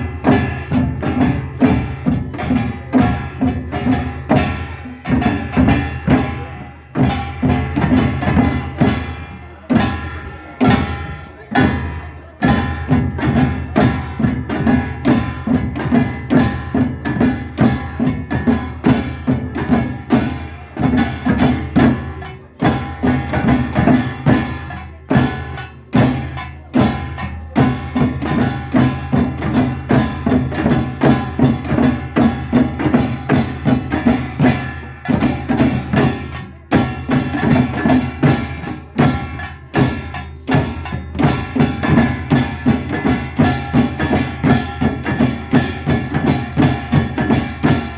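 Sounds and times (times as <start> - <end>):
drums: 0.0 - 47.9
ringing metal percussion: 0.0 - 47.9.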